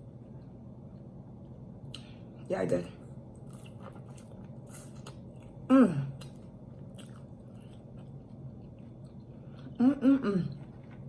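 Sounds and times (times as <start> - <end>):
chewing and wet mouth sounds: 3.3 - 9.8, 10.5 - 11.0.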